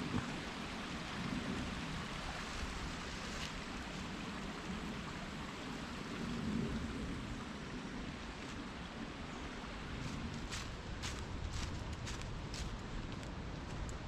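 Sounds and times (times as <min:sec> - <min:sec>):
small waterfall running: 0:00.0 - 0:06.3
wind rumbling on microphone: 0:00.0 - 0:14.0.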